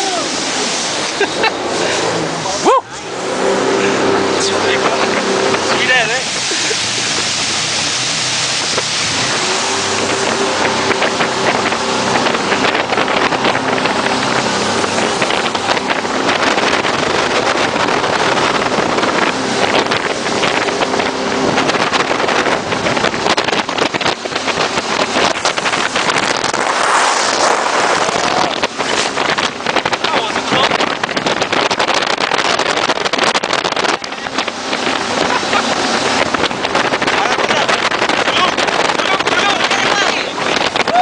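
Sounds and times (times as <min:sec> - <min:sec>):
boat engine drone: 0:00.0 - 0:41.0
rushing water: 0:00.0 - 0:41.0
wind buffeting microphone: 0:00.0 - 0:41.0.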